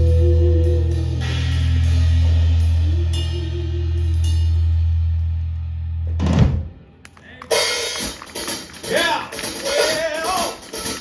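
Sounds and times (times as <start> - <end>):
wavering guitar line: 0.0 - 6.0.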